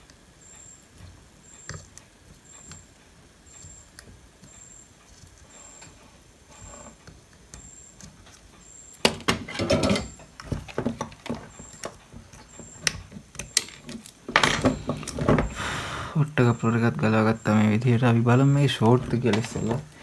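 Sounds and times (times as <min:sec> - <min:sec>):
tools clicking and knocking: 0:09.0 - 0:15.6, 0:18.8 - 0:20.0.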